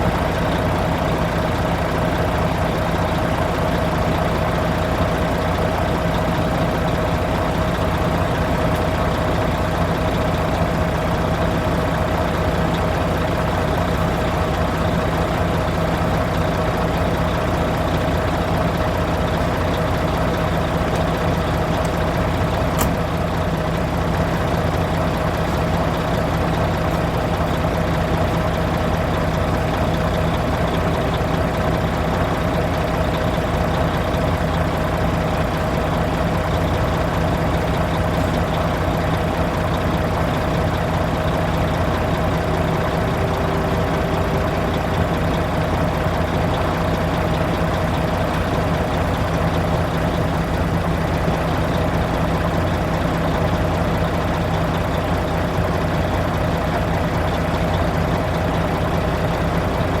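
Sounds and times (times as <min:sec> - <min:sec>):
truck diesel engine idling: 0:00.0 - 1:00.0.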